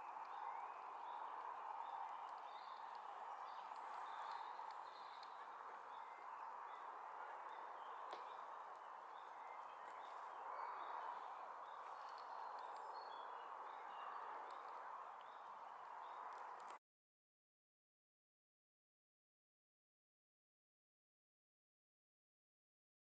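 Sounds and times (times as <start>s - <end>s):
small birds chirping: 0.0s - 16.8s.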